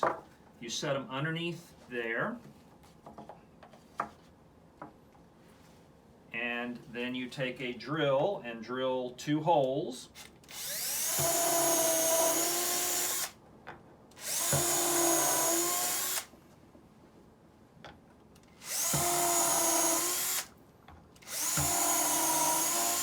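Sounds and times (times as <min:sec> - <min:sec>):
electric drill drilling: 0:10.5 - 0:13.4, 0:14.2 - 0:16.3, 0:18.6 - 0:20.5, 0:21.2 - 0:23.0.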